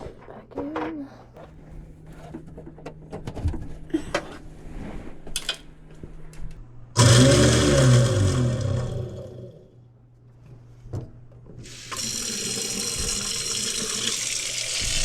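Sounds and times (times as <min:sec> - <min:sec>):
clicks and knocks of handling: 0:05.3 - 0:06.6
garbage disposal motor running: 0:06.9 - 0:09.8, 0:11.6 - 0:15.0.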